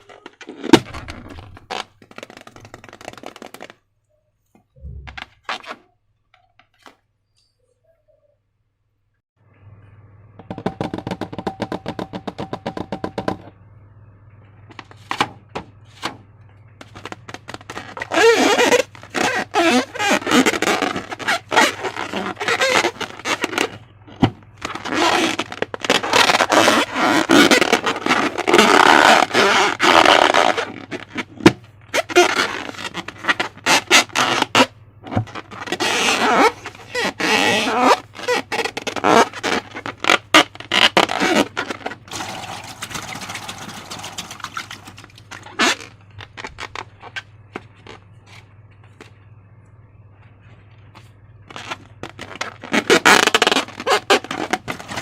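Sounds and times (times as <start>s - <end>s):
low steady hum: 7.2s - 52.6s.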